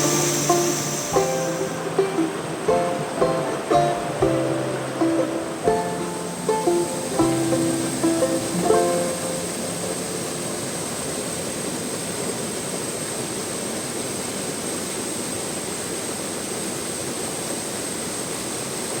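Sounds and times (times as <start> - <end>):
waterfall rushing: 0.0 - 12.8.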